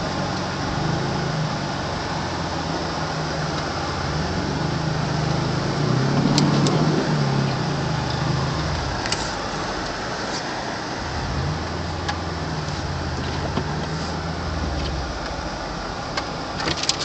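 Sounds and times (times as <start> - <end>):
car engine in snow: 0.0 - 17.0
defroster fan rushing: 5.8 - 17.0.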